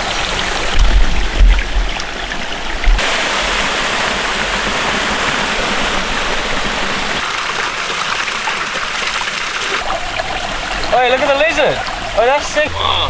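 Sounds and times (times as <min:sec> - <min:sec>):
fast-flowing creek water: 0:00.0 - 0:12.7
thump on microphone: 0:00.8 - 0:01.9.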